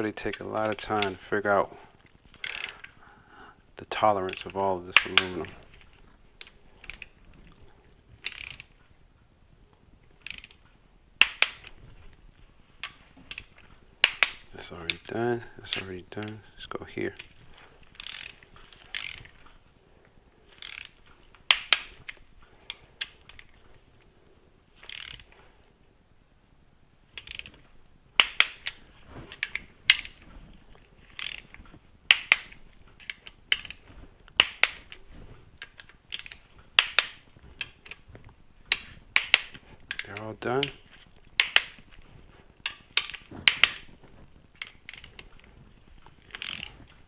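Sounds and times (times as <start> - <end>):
torque wrench ratchet clicking: 2.4 - 2.9, 8.2 - 8.6, 18.0 - 19.3, 20.6 - 22.0, 24.8 - 25.2, 27.2 - 27.5, 31.1 - 31.5, 33.1 - 33.8, 36.1 - 37.2, 44.6 - 45.3, 46.3 - 46.8.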